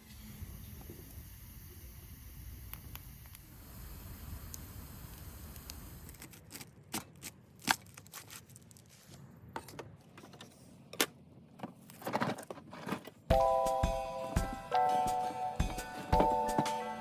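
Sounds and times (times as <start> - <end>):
steady hiss: 0.0 - 6.3
music: 13.3 - 17.0.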